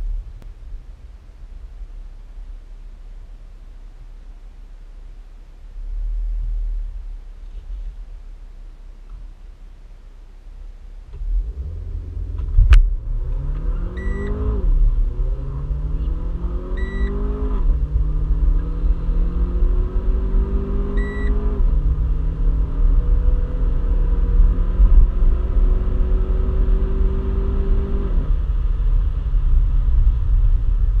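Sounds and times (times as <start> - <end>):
low road rumble: 0.0 - 31.0
car engine accelerating: 10.9 - 31.0
short electronic beep: 14.0 - 14.5, 16.8 - 17.2, 20.9 - 21.4.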